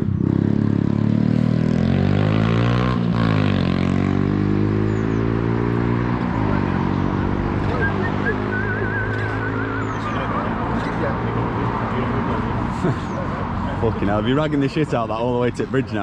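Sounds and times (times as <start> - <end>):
motorcycle engine at low revs: 0.0 - 11.5.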